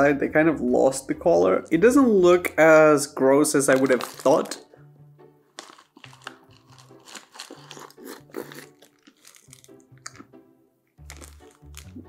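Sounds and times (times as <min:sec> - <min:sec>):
crunchy chewing: 0:05.6 - 0:10.3, 0:11.0 - 0:12.0.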